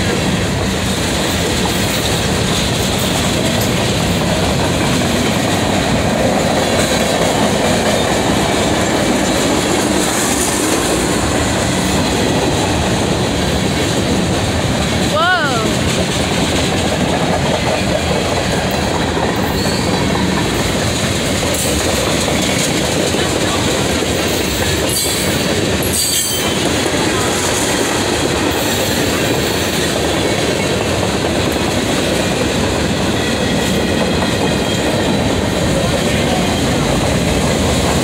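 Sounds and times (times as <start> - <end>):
freight train wheels rumbling: 0.0 - 38.0.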